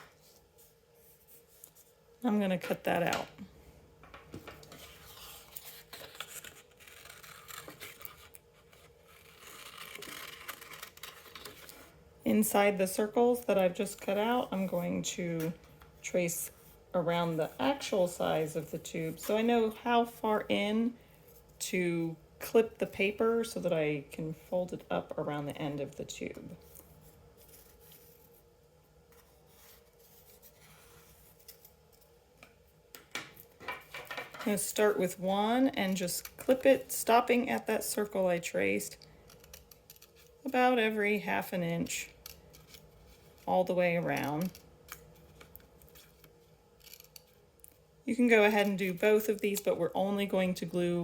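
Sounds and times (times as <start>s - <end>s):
paper rustling and scraping: 4.6s - 11.9s, 26.6s - 28.5s, 29.1s - 32.1s
scissors snipping paper: 5.5s - 11.8s.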